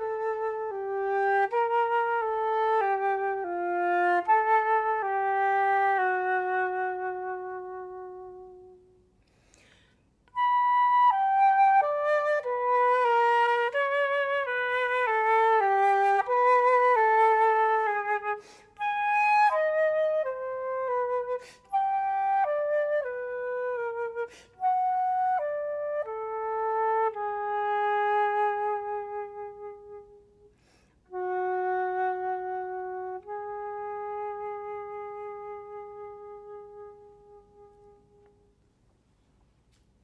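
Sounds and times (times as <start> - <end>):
solo flute melody: 0.0 - 9.2, 10.3 - 38.6
player breathing: 9.2 - 10.1.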